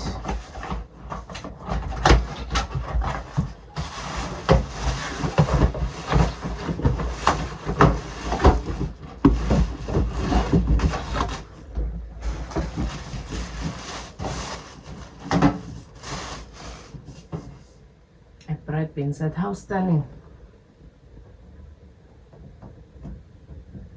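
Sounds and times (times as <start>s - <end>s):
box knocking and clattering: 0.0s - 15.9s
packaging rustling and crinkling: 0.0s - 17.7s.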